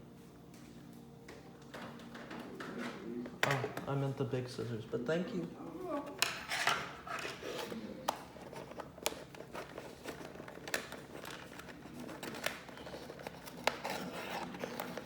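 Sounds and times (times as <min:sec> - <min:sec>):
cardboard handling: 0:05.8 - 0:15.0
plastic crinkling: 0:07.0 - 0:15.0.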